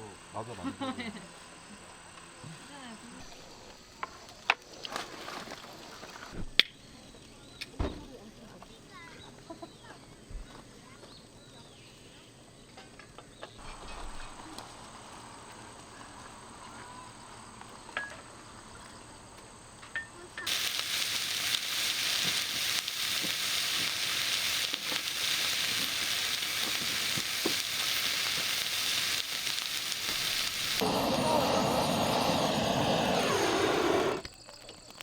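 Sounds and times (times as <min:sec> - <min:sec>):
food sizzling in a pan: 0:20.5 - 0:34.2.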